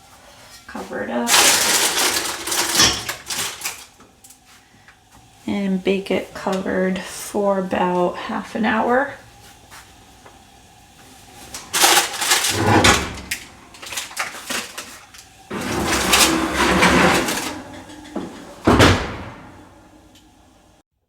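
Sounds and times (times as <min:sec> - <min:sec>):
cast iron pot scraping and clattering: 0:11.4 - 0:19.7.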